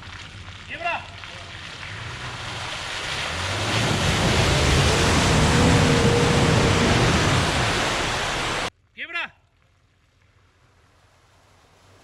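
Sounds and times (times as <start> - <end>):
water splashing: 0.0 - 8.7
vehicle engine under load: 0.2 - 8.7.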